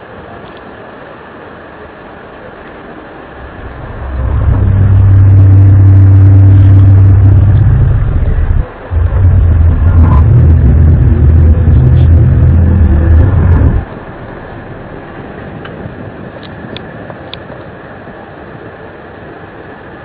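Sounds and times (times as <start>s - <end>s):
low droning rumble: 2.4s - 17.0s.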